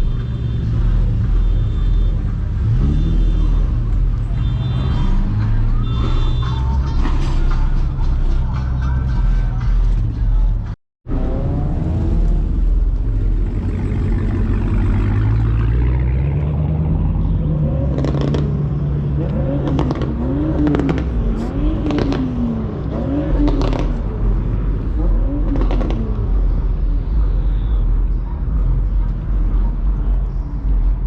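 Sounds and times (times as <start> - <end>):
car engine revving: 11.0 - 31.0.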